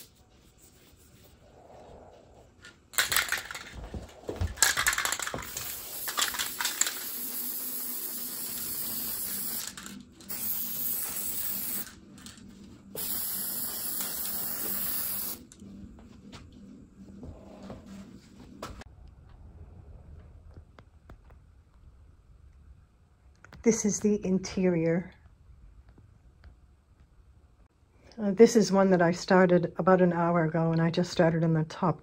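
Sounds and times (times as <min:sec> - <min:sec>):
clattering and handling noise: 0:01.8 - 0:07.2, 0:11.2 - 0:19.4
aerosol spray can hissing: 0:05.4 - 0:12.0, 0:13.0 - 0:15.5.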